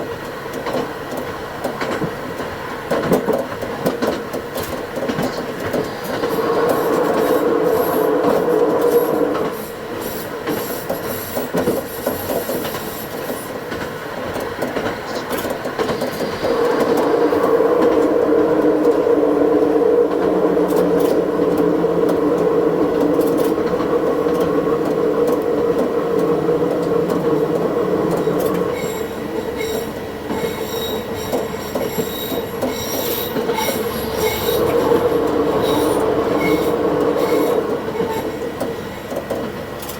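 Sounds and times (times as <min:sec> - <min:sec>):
railcar engine drone: 0:00.0 - 0:39.9
high wheel squeals: 0:05.9 - 0:13.6, 0:28.1 - 0:39.1.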